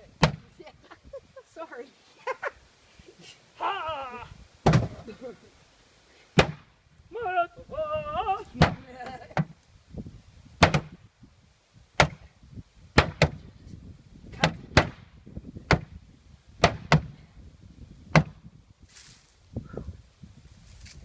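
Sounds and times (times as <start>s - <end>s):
maul hammering a refrigerator: 10.6s - 10.9s, 12.0s - 12.2s, 16.6s - 17.1s.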